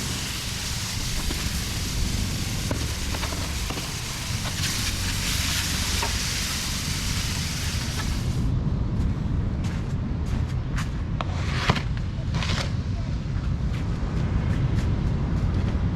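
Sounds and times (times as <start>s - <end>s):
rushing hiss: 0.0s - 8.5s
wind buffeting microphone: 0.0s - 15.9s.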